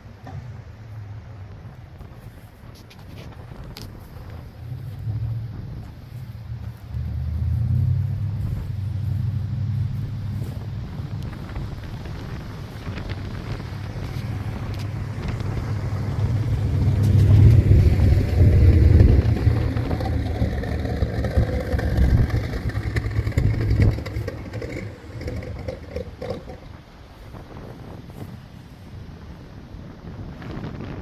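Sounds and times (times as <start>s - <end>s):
pickup truck engine driving: 3.3s - 27.3s.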